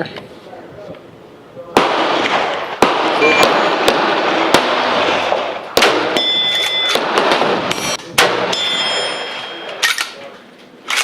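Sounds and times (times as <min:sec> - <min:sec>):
rifle shots echoing: 0:01.8 - 0:10.2.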